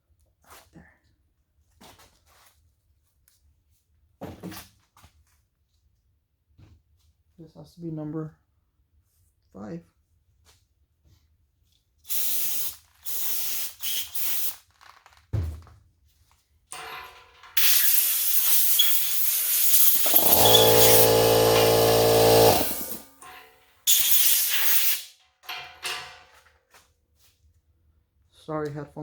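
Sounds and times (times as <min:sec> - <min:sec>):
pressurised air hissing: 0:17.6 - 0:23.1, 0:23.9 - 0:25.0
low pitched hum: 0:20.0 - 0:23.1.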